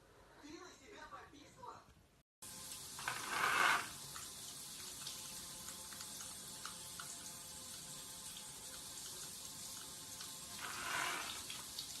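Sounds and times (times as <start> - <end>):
water running: 2.4 - 12.0.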